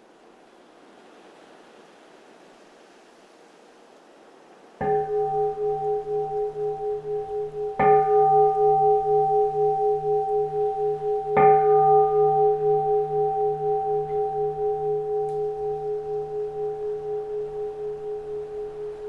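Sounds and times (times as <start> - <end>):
bowl bell ringing: 4.8 - 19.0.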